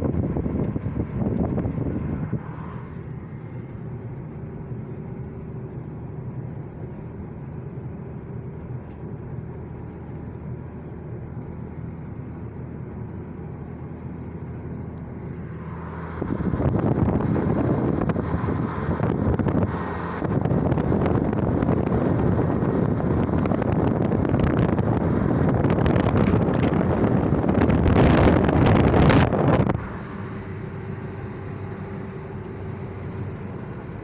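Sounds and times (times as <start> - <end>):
wind on microphone: 0.0 - 3.1, 15.8 - 30.5
engine hum: 0.0 - 34.0.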